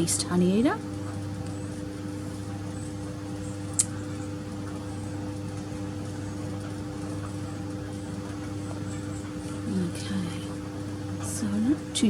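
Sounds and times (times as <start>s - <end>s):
machine humming: 0.0s - 12.0s
sharp click: 3.8s - 4.0s.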